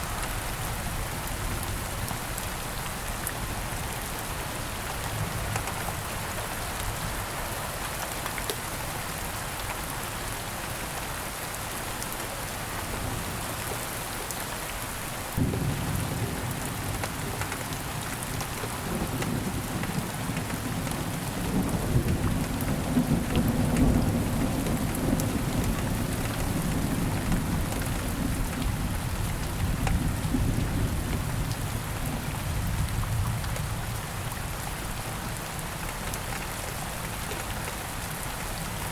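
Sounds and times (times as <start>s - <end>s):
rain falling: 0.0s - 38.9s
low rumble of thunder: 15.4s - 34.3s.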